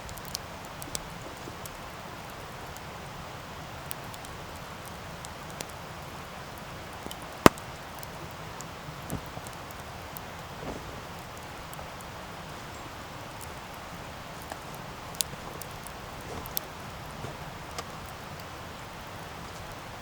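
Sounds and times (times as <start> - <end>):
campfire crackling: 0.0 - 20.0
campfire loud pop: 7.4 - 8.1.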